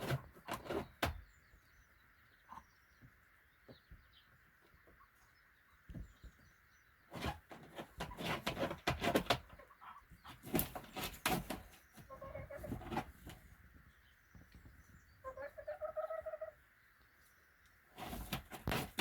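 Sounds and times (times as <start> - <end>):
hen scratching in straw: 0.0 - 1.2, 7.1 - 14.0, 17.2 - 19.0.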